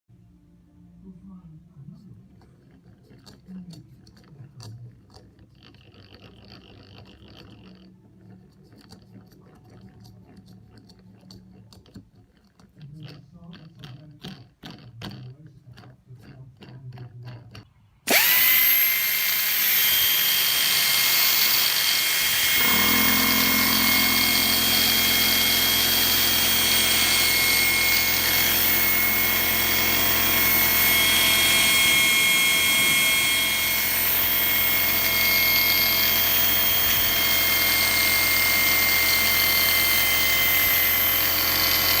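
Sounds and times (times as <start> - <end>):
angle grinder whining: 18.1 - 42.0
low hum: 20.4 - 42.0.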